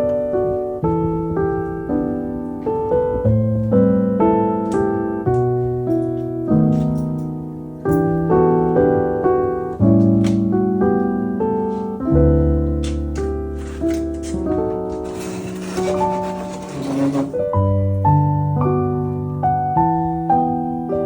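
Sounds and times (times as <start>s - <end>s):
slow solo piano: 0.0s - 21.0s.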